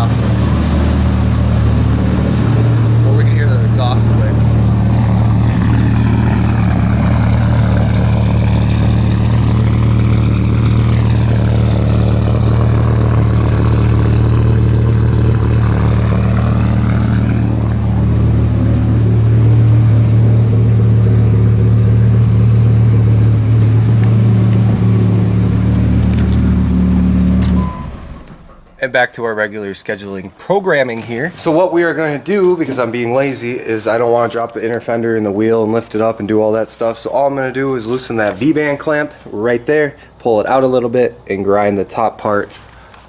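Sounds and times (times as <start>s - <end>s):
truck engine idling: 0.0s - 29.6s.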